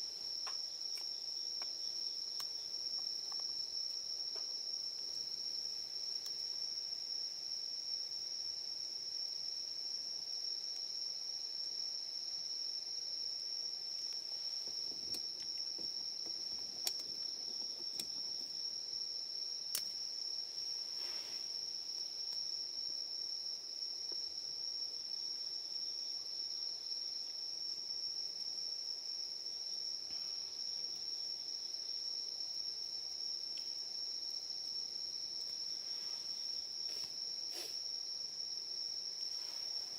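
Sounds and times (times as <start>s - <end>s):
night insects singing: 0.0s - 39.9s.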